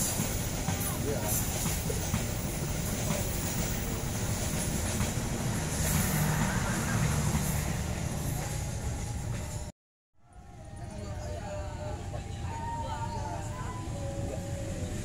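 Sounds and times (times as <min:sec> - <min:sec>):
steel wheels rumbling on rail: 0:00.0 - 0:09.7.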